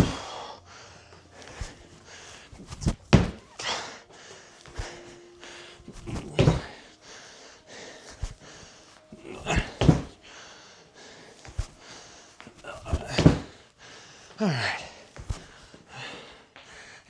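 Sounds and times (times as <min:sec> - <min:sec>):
feet landing thuds: 0:00.0 - 0:00.5, 0:01.3 - 0:10.4, 0:11.3 - 0:13.6, 0:15.2 - 0:15.7
heavy panting: 0:00.0 - 0:17.0.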